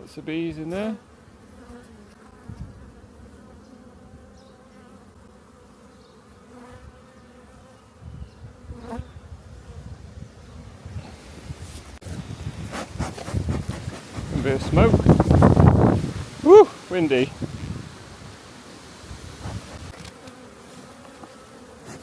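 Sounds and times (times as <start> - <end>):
honeybees buzzing: 0.0 - 22.0
wind rumble on microphone: 2.4 - 2.9, 8.0 - 16.5, 17.2 - 18.4, 19.1 - 20.1.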